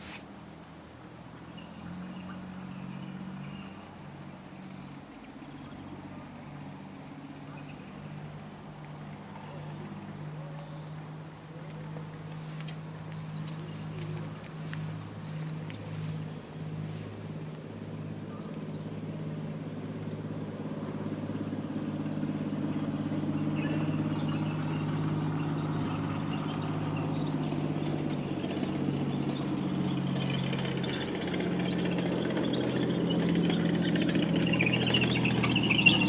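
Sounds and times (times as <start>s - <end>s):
engine idling: 0.0s - 36.0s.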